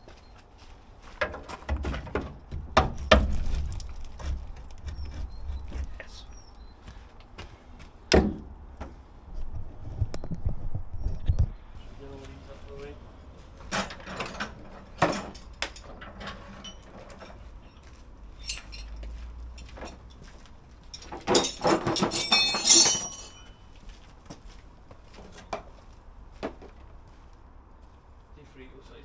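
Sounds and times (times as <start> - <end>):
metal tools knocking and clinking: 13.6 - 20.2, 20.9 - 23.6
loud ringing metallic clanks: 21.0 - 23.6.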